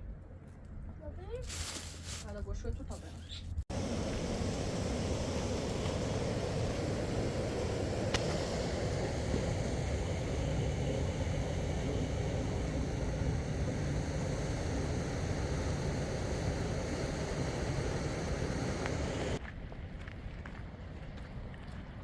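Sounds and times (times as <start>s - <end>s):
low rumbling noise: 3.7s - 19.4s.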